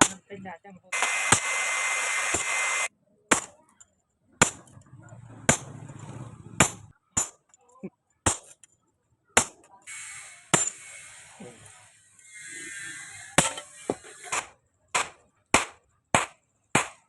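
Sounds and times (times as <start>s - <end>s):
hammer striking steel: 0.0s - 0.2s, 3.3s - 3.7s, 9.4s - 11.1s, 13.3s - 17.0s
steady hiss: 0.9s - 2.9s.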